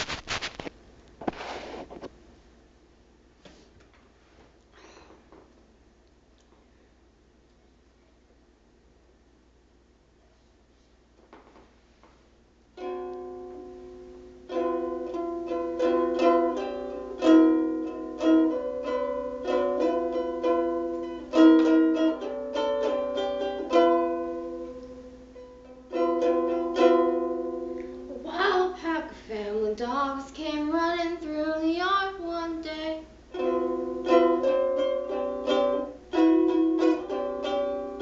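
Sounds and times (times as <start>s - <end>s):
ukulele fingerpicked and strummed: 12.8s - 29.1s, 33.3s - 38.0s
young female voice singing: 28.1s - 33.1s.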